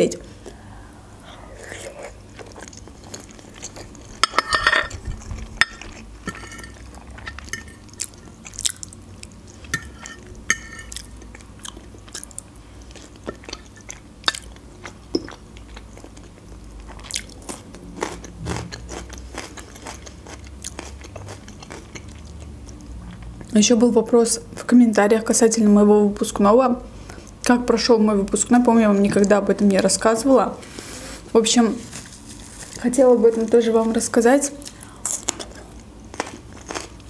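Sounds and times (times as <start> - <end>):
close-miked chewing: 1.2 - 9.7, 10.9 - 23.6, 34.6 - 37.0.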